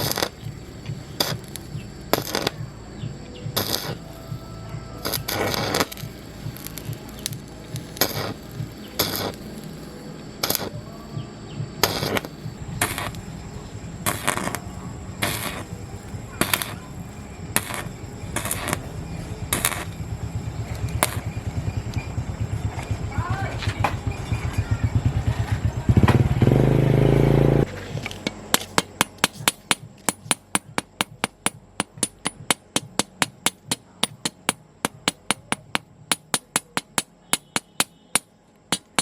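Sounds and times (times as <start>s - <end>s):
low mechanical rumble: 0.0s - 39.0s
sharp knocks on metal: 28.0s - 39.0s.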